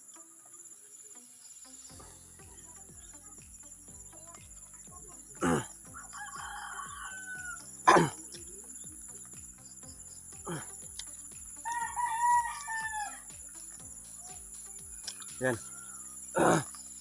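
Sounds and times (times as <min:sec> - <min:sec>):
crickets droning: 0:00.0 - 0:17.0
rooster crowing: 0:05.4 - 0:07.7, 0:11.6 - 0:13.3.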